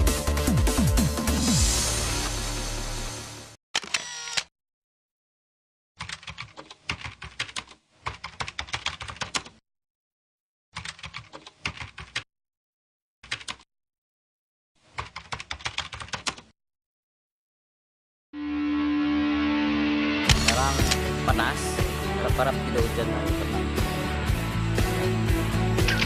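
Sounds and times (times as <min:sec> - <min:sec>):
computer keyboard typing clicks: 0:06.0 - 0:09.6, 0:10.8 - 0:12.2, 0:15.0 - 0:16.5.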